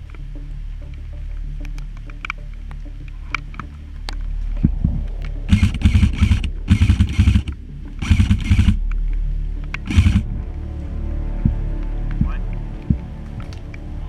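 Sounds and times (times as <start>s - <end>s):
airsoft gun firing bursts: 5.5s - 8.8s, 9.9s - 10.3s.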